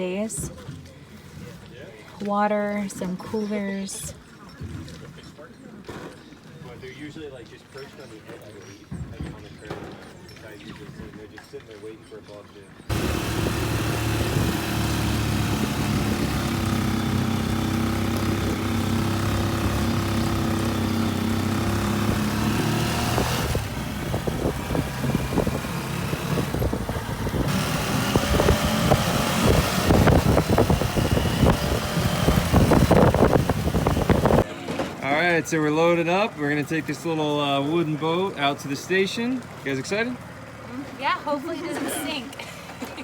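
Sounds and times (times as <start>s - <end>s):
small engine running: 12.9s - 34.4s.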